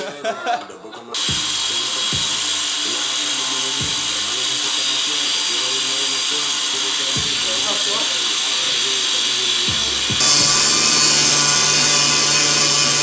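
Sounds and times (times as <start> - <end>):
music with deep bass beat: 1.2 - 2.6, 3.8 - 4.3, 7.2 - 7.7, 9.7 - 10.2
power tool whining: 1.2 - 13.0.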